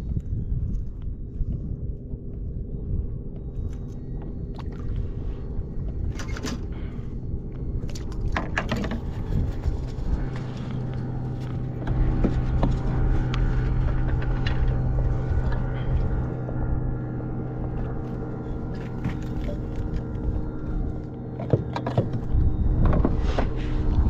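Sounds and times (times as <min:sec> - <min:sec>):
boat motor running: 0:00.0 - 0:24.0.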